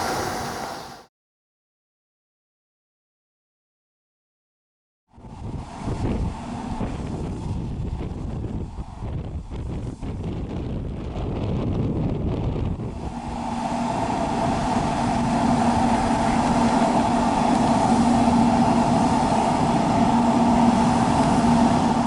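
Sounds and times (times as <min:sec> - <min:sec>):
train rolling rumble: 0:05.2 - 0:22.0.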